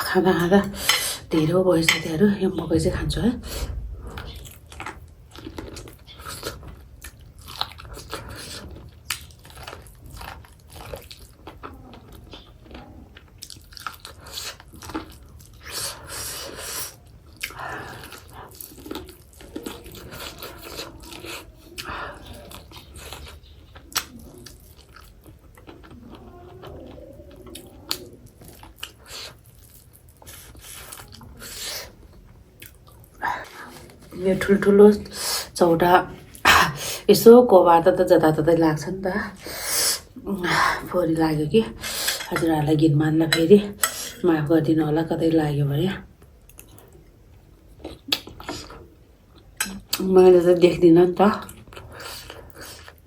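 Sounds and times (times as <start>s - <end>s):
chewing corn on the cob: 3.8s - 34.1s, 46.2s - 50.1s, 51.3s - 53.0s.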